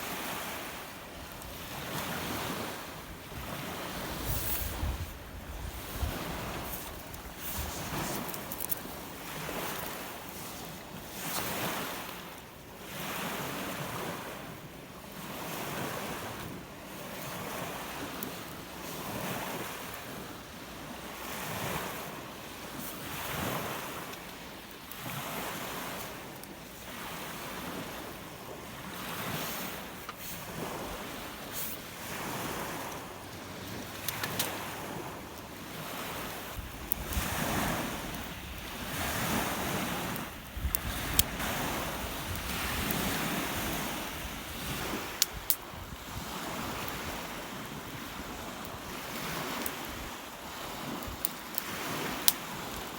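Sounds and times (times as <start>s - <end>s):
waves breaking on shore: 0.0s - 52.9s
wind buffeting microphone: 1.2s - 10.1s, 34.6s - 52.9s.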